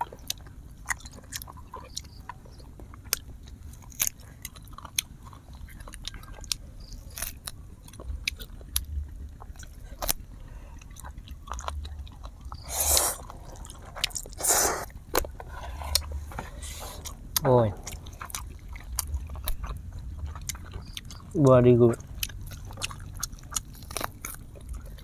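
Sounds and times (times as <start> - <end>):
chewing and biting food: 0.0 - 25.0.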